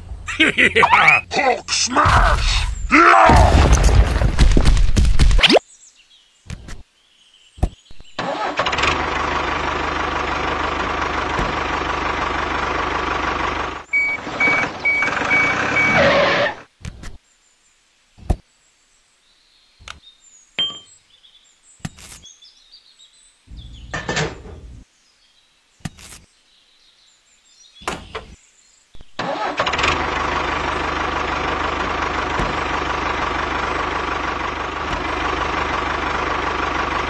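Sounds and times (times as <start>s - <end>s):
tractor engine running: 8.2s - 16.6s, 29.2s - 37.0s.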